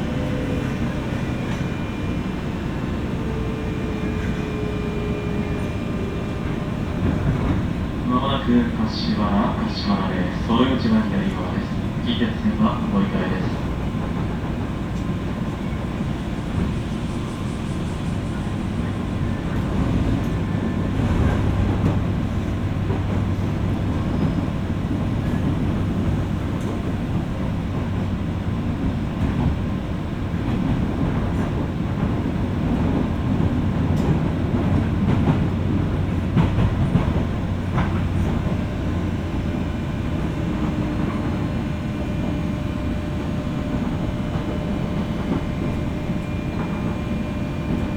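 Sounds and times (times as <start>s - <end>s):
rail-joint clicks: 0.0s - 4.7s, 10.8s - 16.7s, 18.8s - 28.1s, 30.4s - 47.9s
train wheels and motors rumbling: 0.0s - 47.9s.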